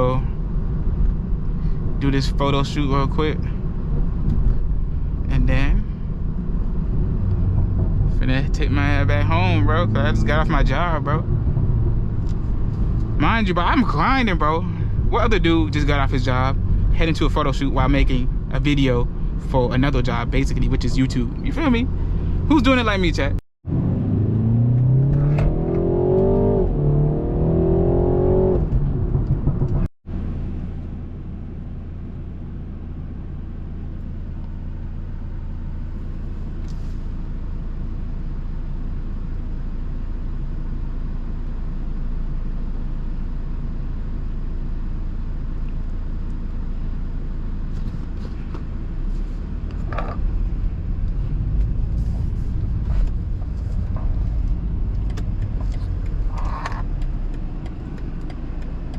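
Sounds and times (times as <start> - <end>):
car cruising drone: 0.0 - 58.9
car engine accelerating through gears: 6.0 - 17.6, 23.7 - 30.6, 47.7 - 58.9.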